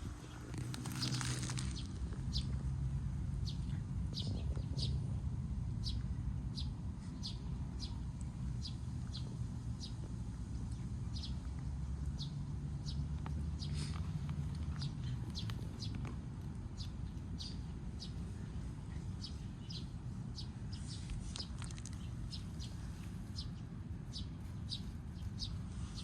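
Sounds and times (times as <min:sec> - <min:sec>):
steady low rumble: 0:00.0 - 0:26.0
small bird chirping: 0:16.7 - 0:26.0.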